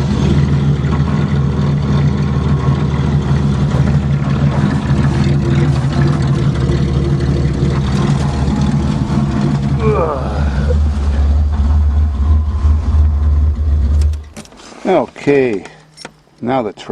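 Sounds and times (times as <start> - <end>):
car engine idling: 0.0 - 16.9
steady higher tone: 2.4 - 14.4.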